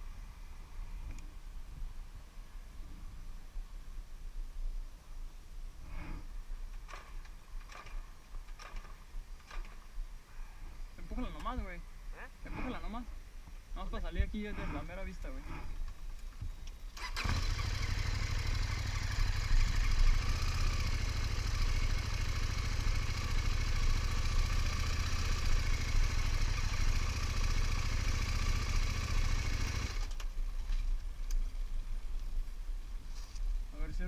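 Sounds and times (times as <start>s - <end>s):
motorcycle engine running: 17.1s - 30.2s.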